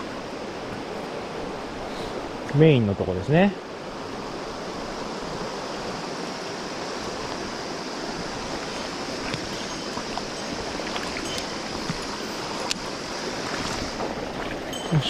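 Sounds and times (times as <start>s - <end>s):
stream water flowing: 0.0s - 15.0s.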